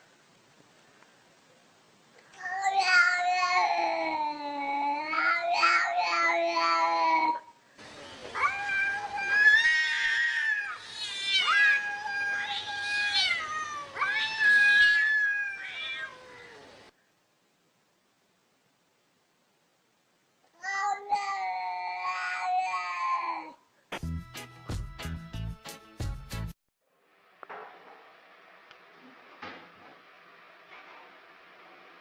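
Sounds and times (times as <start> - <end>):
animal wailing cries: 8.4 - 16.8.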